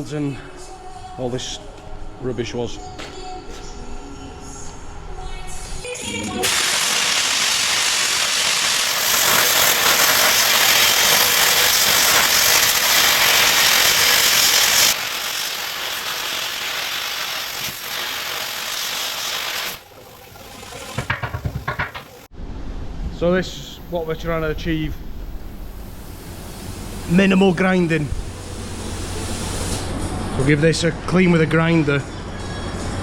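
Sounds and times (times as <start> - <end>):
compressed air blast: 6.4 - 19.8
carbon arc crackling: 6.4 - 20.4.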